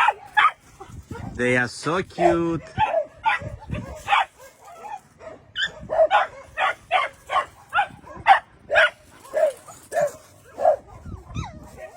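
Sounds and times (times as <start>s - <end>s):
dog barking in high yips: 0.0s - 1.4s, 2.2s - 11.9s.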